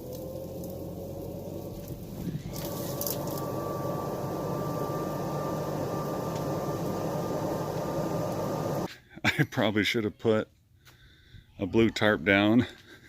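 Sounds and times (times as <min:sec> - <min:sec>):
leaf blower whine: 0:00.0 - 0:08.9.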